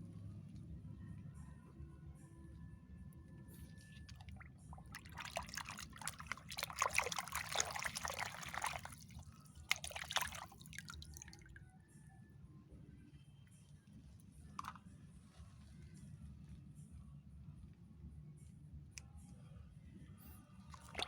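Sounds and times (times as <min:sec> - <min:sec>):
water splashing and trickling: 0:03.7 - 0:11.6, 0:20.7 - 0:21.0.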